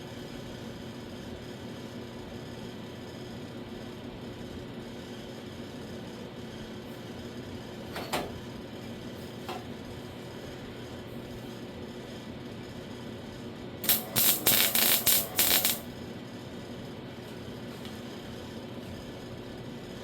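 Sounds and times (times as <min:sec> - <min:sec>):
steady low hum: 0:13.5 - 0:19.6
welding arc crackling: 0:13.8 - 0:15.9.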